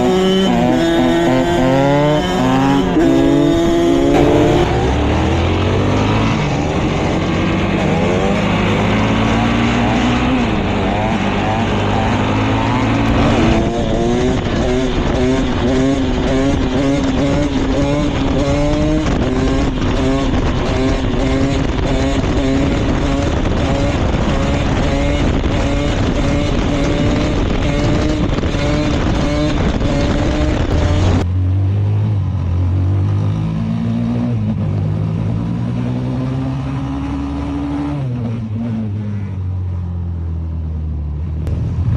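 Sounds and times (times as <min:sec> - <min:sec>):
wind rushing on microphone: 0:00.0 - 0:31.3
motorcycle engine revving: 0:00.0 - 0:40.0.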